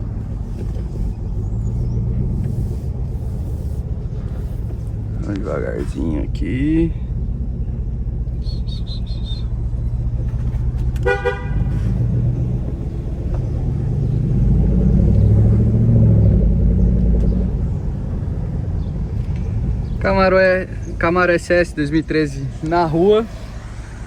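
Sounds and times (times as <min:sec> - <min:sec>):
car engine running: 0:00.0 - 0:24.0
car horn toot: 0:11.0 - 0:12.0.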